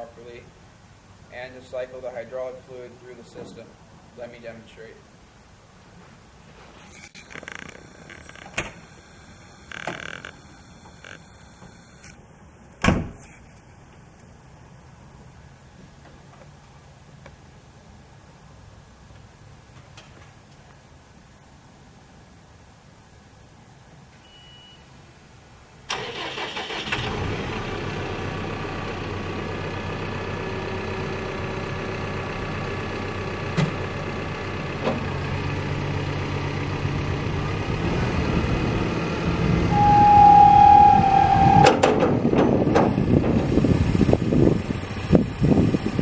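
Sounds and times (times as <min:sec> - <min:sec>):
loud steady tone: 0:06.8 - 0:12.2, 0:39.5 - 0:42.0
diesel engine idling: 0:25.9 - 0:46.0.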